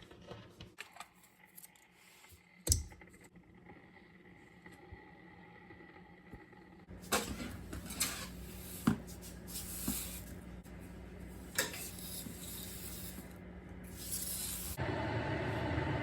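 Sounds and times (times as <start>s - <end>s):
scraping on a hard surface: 7.1s - 10.3s.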